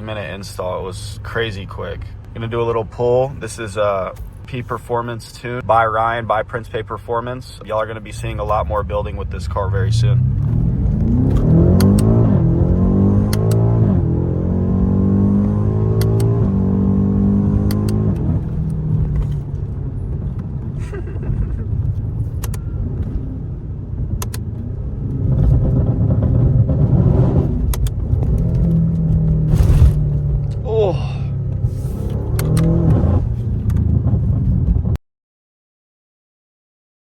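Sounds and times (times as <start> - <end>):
engine and road rumble: 0.0 - 35.0
car engine accelerating with upshifts: 8.1 - 35.0.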